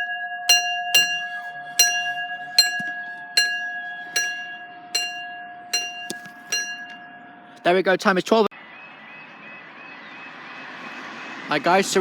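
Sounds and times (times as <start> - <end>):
level crossing alarm: 0.0 - 11.4.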